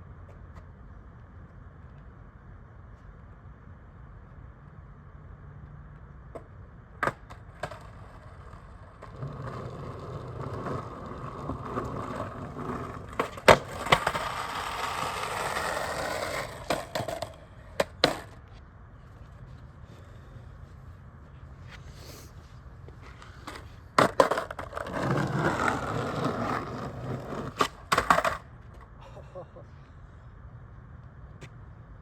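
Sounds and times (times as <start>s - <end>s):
skateboard wheels on concrete: 0.0s - 29.0s
skateboard clacking on ground: 6.3s - 18.5s, 22.9s - 28.9s.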